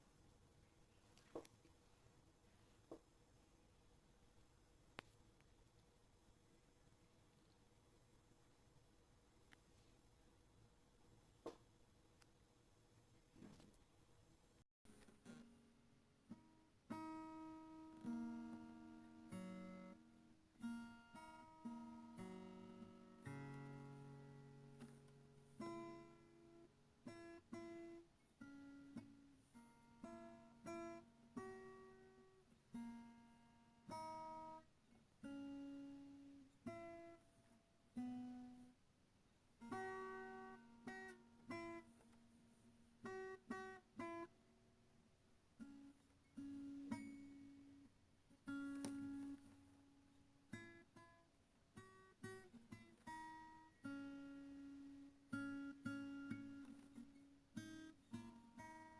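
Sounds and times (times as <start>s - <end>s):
plucked acoustic guitar: 14.9s - 38.8s, 39.6s - 44.3s, 45.6s - 58.9s.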